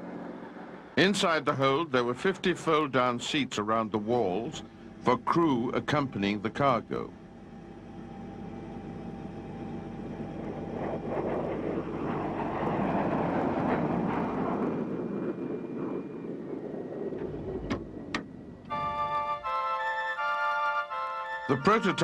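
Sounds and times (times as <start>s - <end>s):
aircraft passing: 0.0s - 22.0s.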